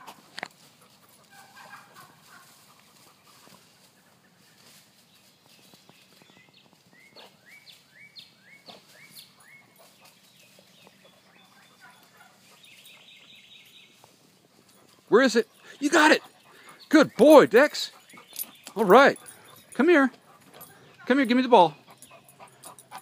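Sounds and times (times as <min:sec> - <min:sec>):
faint rustling and crackling: 0:00.0 - 0:07.9.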